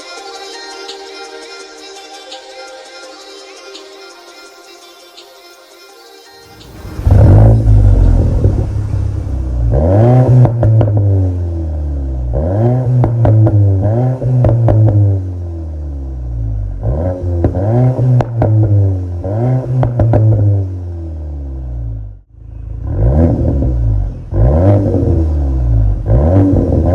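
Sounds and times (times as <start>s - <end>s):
car engine revving: 6.5s - 26.9s
exhaust crackles and pops: 6.6s - 11.4s, 12.4s - 15.1s, 17.3s - 18.7s.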